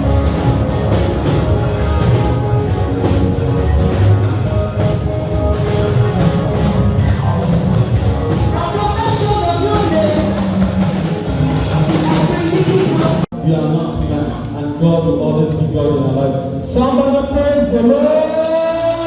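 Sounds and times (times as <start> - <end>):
band playing with drum kit: 0.0 - 14.8
person singing: 8.3 - 19.0.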